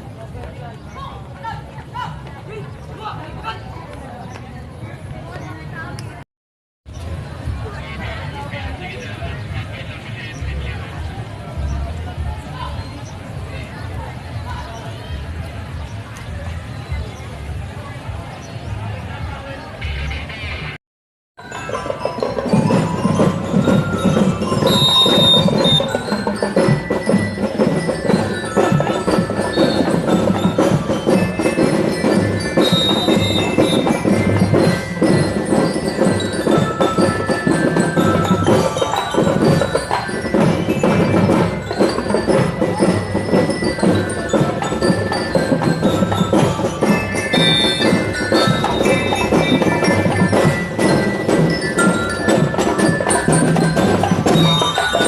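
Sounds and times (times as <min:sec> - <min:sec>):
bell lyre melody: 0:21.4 - 0:55.0
steady drum beat: 0:21.5 - 0:55.0.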